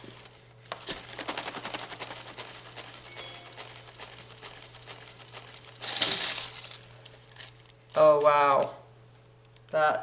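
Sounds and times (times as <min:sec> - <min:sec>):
rapid patter of clicks: 0:00.7 - 0:08.0.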